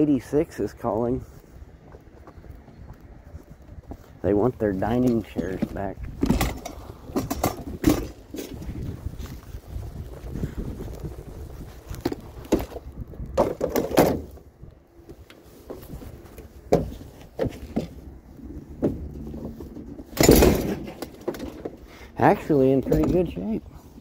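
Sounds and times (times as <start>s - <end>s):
items knocking and clattering: 6.2s - 8.8s, 13.4s - 14.3s, 18.8s - 21.8s
low steady rumble: 14.2s - 24.0s.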